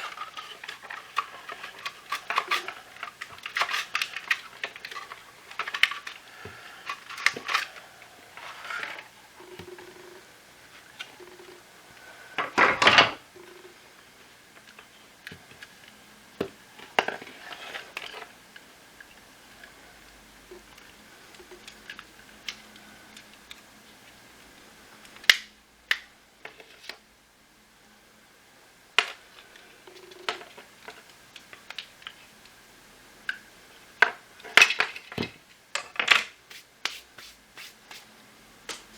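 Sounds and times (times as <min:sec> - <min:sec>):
plastic parts clicking and rattling: 0:00.0 - 0:06.2, 0:06.8 - 0:07.8, 0:34.0 - 0:36.3.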